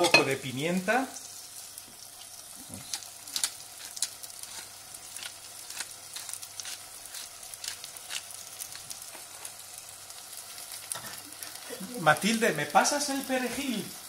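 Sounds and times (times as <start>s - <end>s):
vegetables sizzling in a saucepan: 0.0s - 14.0s
sharp crackles: 2.5s - 12.4s.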